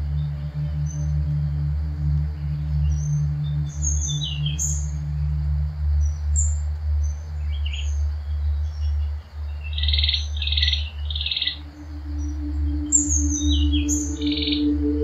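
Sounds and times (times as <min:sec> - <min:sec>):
birds chirping: 0:00.0 - 0:15.0
low drone: 0:00.0 - 0:15.0
bird trilled calls: 0:07.5 - 0:15.0.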